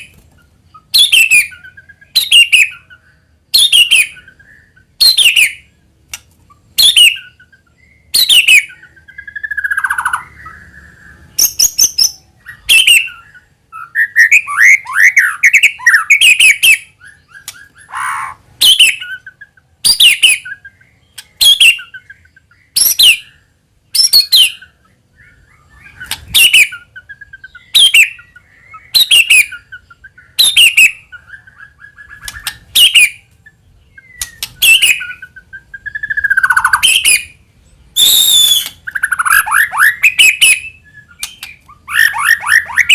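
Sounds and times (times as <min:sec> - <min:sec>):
bird sharp downward-sweeping calls: 0:06.5 - 0:33.3, 0:33.9 - 0:42.9
bird soft whistles and warbles: 0:38.0 - 0:42.9.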